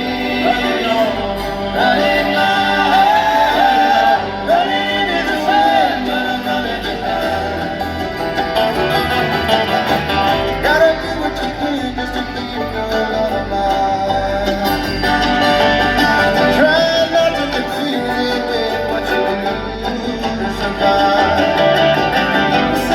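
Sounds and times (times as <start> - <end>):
bluegrass band playing: 0.0 - 22.9
person singing lead vocal: 0.0 - 22.9.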